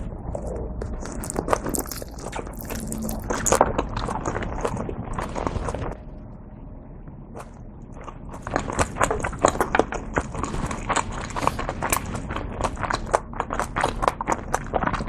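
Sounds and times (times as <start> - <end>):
chewing with mouth clicks: 0.0 - 6.0, 7.4 - 15.0
biting into a dumpling: 0.3 - 5.9.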